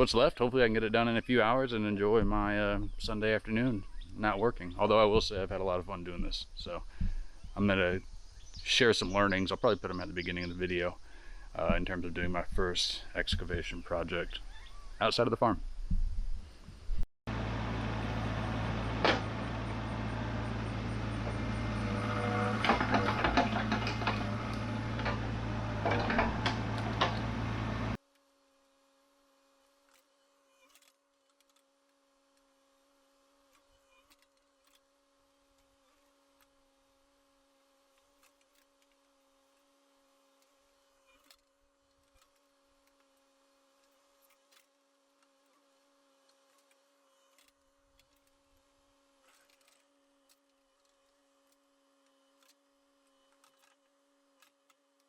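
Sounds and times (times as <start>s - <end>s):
faint steady hum: 0.0s - 55.0s
excavator diesel engine running: 17.3s - 28.0s
metallic clanks and scrapes: 21.2s - 28.0s.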